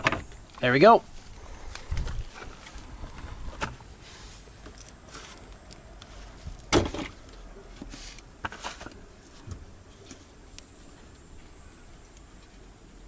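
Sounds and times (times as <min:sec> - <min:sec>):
knocks and scrapes of parts: 0:00.0 - 0:00.4, 0:01.9 - 0:10.3.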